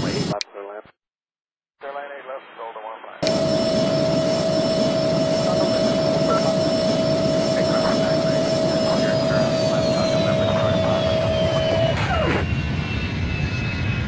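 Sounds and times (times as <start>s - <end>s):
jet engine whine: 0.0s - 0.4s, 3.2s - 14.0s
jet engines roaring: 0.0s - 0.4s, 3.2s - 14.0s
high whine falling in pitch: 3.2s - 13.7s.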